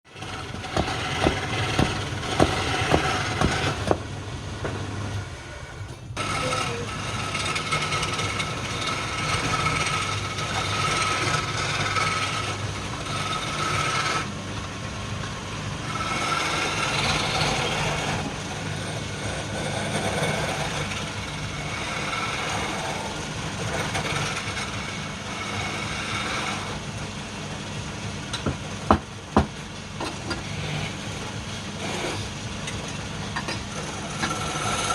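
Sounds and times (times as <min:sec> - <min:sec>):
turning tool scraping wood: 0:00.1 - 0:04.1, 0:05.3 - 0:14.4, 0:15.8 - 0:26.9, 0:28.4 - 0:32.9, 0:33.6 - 0:34.9
wood lathe motor hum: 0:00.1 - 0:29.6, 0:30.2 - 0:34.9
sharp knocks: 0:00.2 - 0:04.1.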